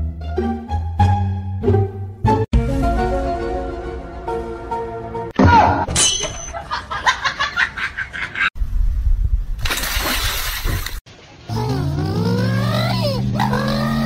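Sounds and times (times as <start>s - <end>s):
dog splashing through water: 9.6s - 11.0s.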